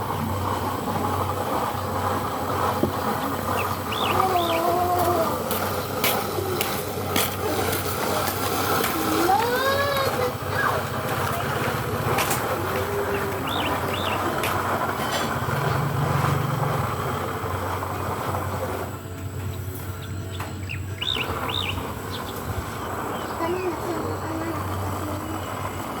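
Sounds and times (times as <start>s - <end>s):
motor engine humming: 0.0s - 26.0s
rising and falling call: 3.2s - 6.6s, 12.5s - 14.5s, 20.6s - 24.2s
high bird chirps: 3.5s - 4.7s, 13.1s - 14.4s, 20.0s - 24.2s.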